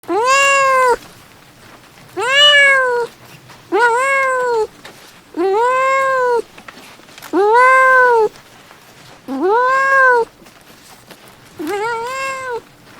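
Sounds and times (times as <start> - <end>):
cat meowing: 0.0 - 1.1, 2.2 - 3.1, 3.7 - 4.7, 5.4 - 6.5, 7.3 - 8.4, 9.3 - 10.3, 11.6 - 12.7.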